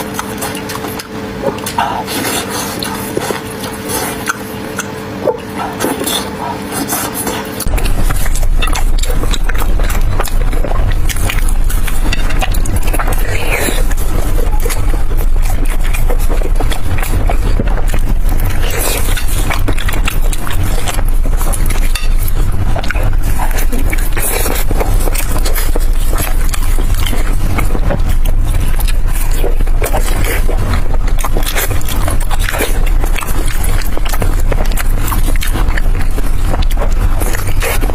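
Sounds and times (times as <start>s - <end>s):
biting and chewing food: 0.0s - 37.9s
steady low rumble: 7.6s - 37.9s.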